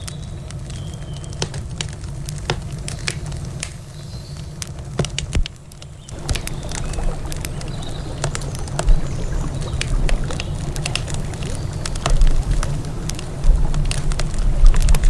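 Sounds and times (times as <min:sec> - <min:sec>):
campfire crackling and popping: 0:00.0 - 0:15.0
low rumble: 0:06.2 - 0:15.0.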